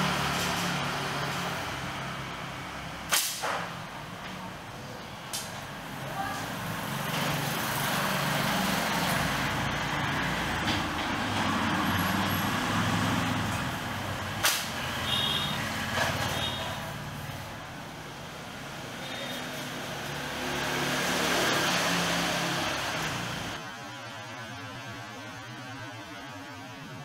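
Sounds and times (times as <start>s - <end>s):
bow string snap: 3.1s - 3.7s, 14.4s - 14.8s.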